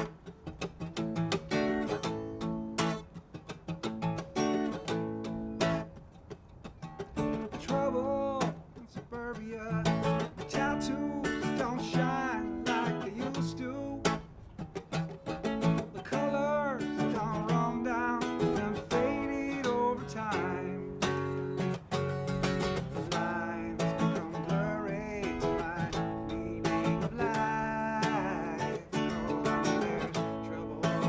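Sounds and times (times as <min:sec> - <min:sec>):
acoustic guitar strumming: 0:00.0 - 0:31.0
man singing: 0:07.3 - 0:14.3, 0:15.5 - 0:31.0.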